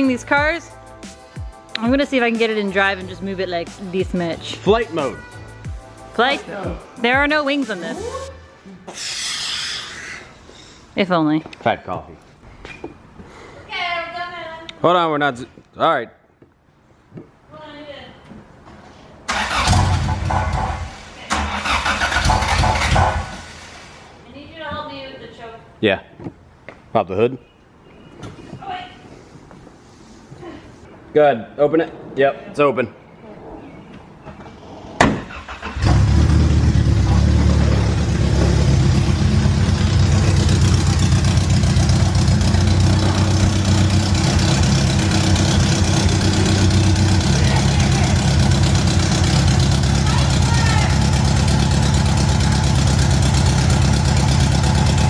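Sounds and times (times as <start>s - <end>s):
car engine cranking: 19.3s - 23.5s, 35.2s - 55.0s.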